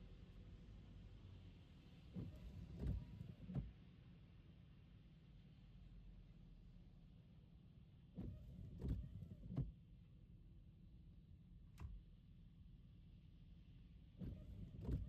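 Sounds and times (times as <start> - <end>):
windshield wipers sweeping wet glass: 2.1 - 3.7, 14.2 - 15.0.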